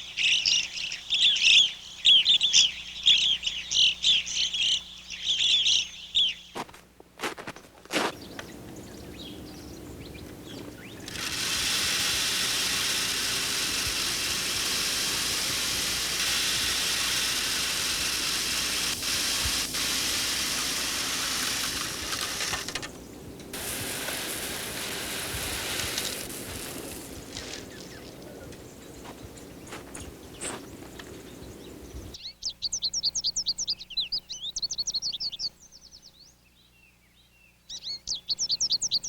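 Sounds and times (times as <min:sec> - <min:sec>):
steady rushing hiss: 0:08.1 - 0:32.2.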